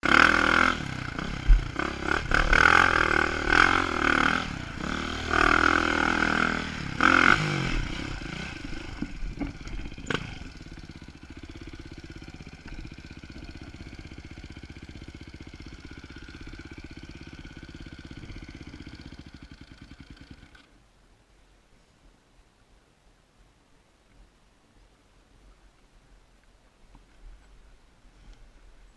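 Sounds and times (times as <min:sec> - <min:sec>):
dirt bike engine revving and idling: 0:00.0 - 0:20.7.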